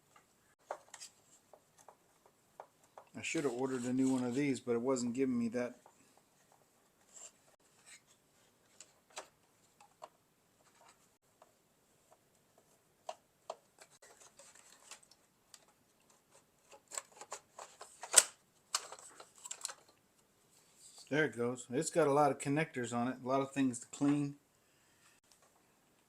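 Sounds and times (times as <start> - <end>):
plastic parts clicking and tapping: 0.0 - 3.2, 8.8 - 20.0
plastic clacking and rustling: 0.0 - 4.4, 5.7 - 20.0.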